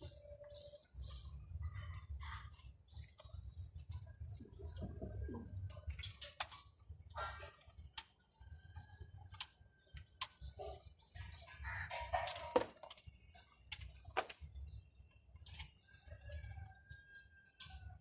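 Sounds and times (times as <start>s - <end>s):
pigeons clicking and scuffing: 0.0s - 18.0s.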